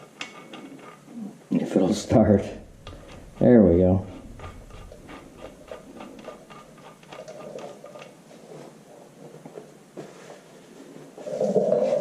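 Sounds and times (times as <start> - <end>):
light clicks and scratching: 0.0 - 9.7
scratchy rustle: 1.9 - 9.1.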